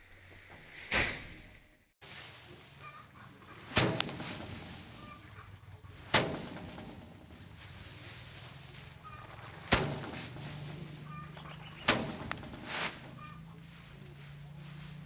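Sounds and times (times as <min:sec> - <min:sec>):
faint bird chirps: 0:10.4 - 0:12.3.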